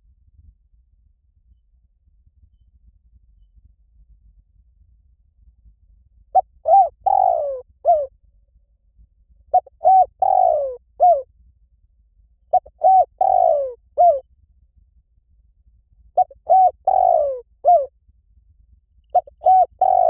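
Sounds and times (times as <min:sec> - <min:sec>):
dove cooing: 0:06.4 - 0:08.1, 0:09.5 - 0:11.2, 0:12.5 - 0:14.2, 0:16.2 - 0:17.9, 0:19.2 - 0:20.0.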